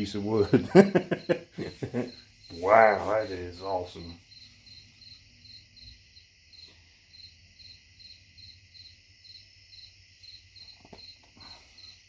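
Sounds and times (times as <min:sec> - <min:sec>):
cricket chirping: 0:00.0 - 0:12.0
steady insect hiss: 0:00.0 - 0:12.0.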